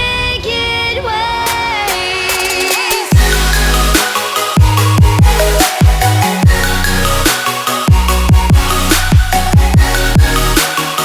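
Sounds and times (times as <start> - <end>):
electronic dance music: 1.5 - 11.0
kick drum beat: 3.1 - 3.5, 4.6 - 6.7, 7.9 - 10.4
sustained synth chords: 3.1 - 11.0.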